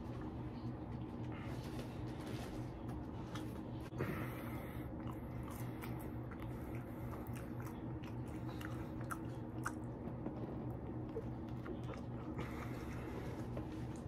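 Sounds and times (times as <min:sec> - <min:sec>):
low hum: 0:00.0 - 0:14.0
chewing and biting food: 0:04.8 - 0:14.0.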